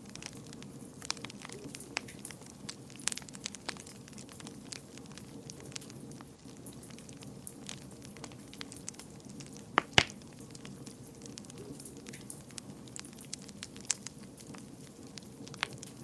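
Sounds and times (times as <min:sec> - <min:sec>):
wood fire hissing and crackling: 0:00.0 - 0:16.0
sharp loud fire pops: 0:09.8 - 0:10.2.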